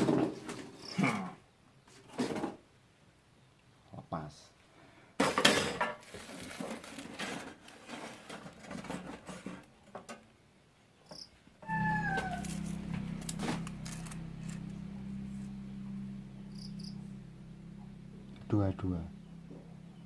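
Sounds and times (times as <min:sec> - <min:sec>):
band saw motor humming: 0:11.7 - 0:20.0.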